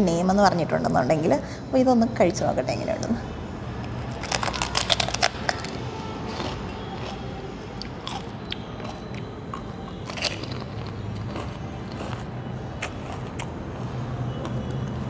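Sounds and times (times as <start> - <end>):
crunching and chewing food: 3.8 - 15.0.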